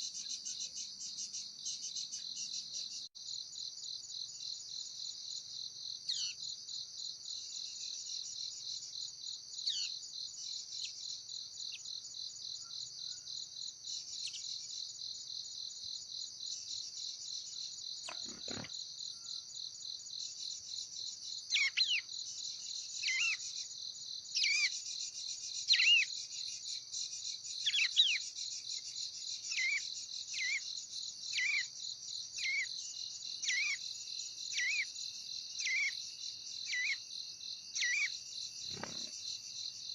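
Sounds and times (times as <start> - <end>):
insects trilling: 0.0 - 39.9
bird chirping: 17.5 - 19.4, 21.5 - 23.7, 24.4 - 30.7, 32.4 - 33.9, 34.5 - 34.9, 35.6 - 37.1, 37.8 - 39.5.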